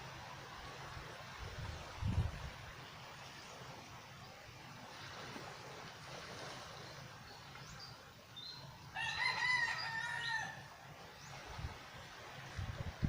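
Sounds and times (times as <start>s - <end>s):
long drawn-out bird call: 8.4s - 11.4s.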